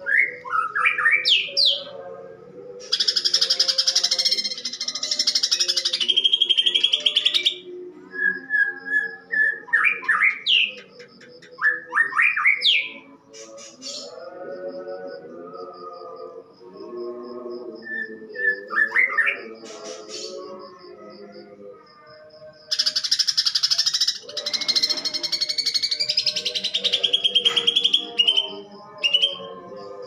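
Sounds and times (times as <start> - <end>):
bird singing harshly: 2.8 - 7.7, 22.7 - 29.5
rapid buzzing chatter: 13.3 - 14.9, 19.5 - 20.7.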